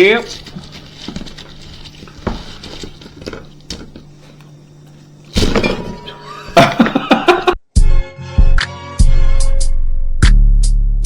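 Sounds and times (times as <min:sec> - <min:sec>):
tableware clinking: 0:00.2 - 0:07.6.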